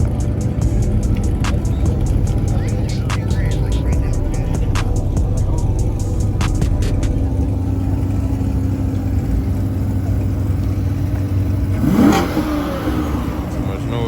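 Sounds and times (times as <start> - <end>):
vehicle engine revving: 0.0 - 14.0.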